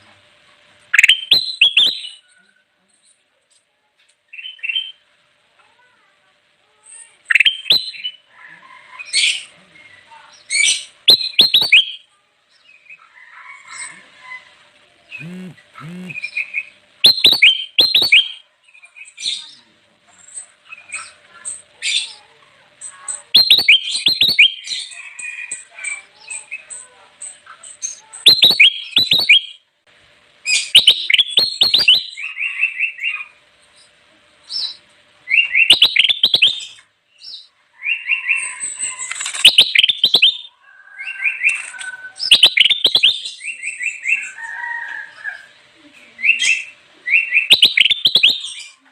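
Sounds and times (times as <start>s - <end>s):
bulbul singing: 1.0s - 2.3s, 10.4s - 13.0s, 15.1s - 19.6s, 22.8s - 29.6s, 30.5s - 33.3s, 34.5s - 44.4s, 46.2s - 48.8s.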